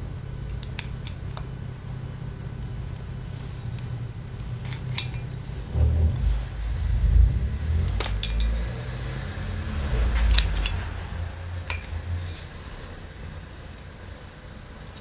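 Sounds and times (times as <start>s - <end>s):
low rumble: 2.6s - 13.1s.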